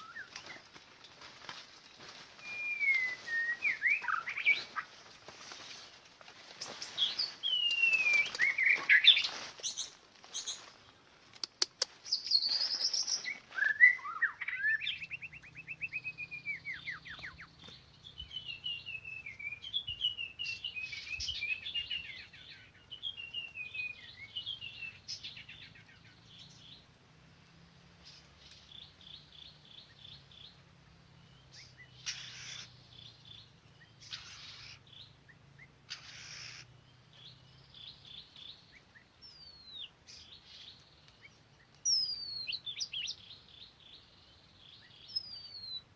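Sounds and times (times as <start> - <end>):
bird singing whistles and trills: 0.0 - 0.7, 2.4 - 4.9, 7.0 - 9.3, 12.1 - 25.8, 37.2 - 43.6, 44.7 - 45.9.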